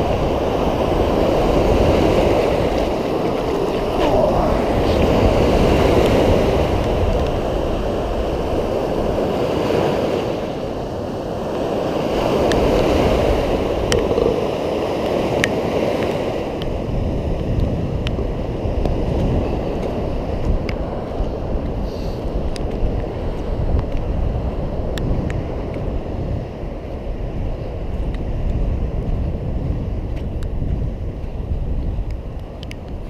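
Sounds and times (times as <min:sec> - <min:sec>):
rushing wind noise: 0:00.0 - 0:33.0
low rumble: 0:02.6 - 0:05.9.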